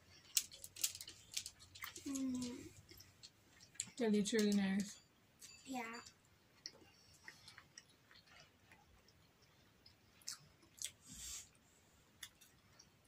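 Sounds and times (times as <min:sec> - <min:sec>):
chewing shrimp: 0:06.4 - 0:13.0.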